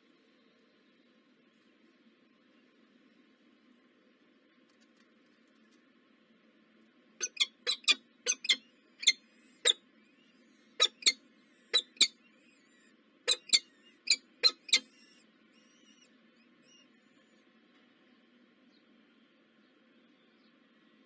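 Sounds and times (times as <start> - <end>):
small bird chirping: 7.2 - 17.5.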